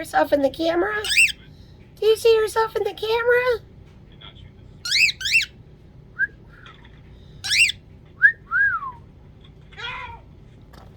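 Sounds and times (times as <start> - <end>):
baby cockatiel whistled chirps: 4.9 - 5.5, 7.5 - 7.8.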